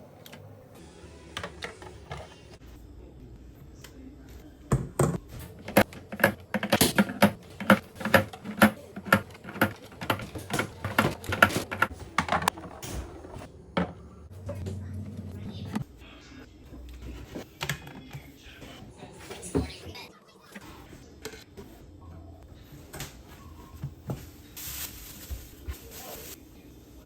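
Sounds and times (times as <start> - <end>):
items clacking and knocking: 4.9 - 14.6.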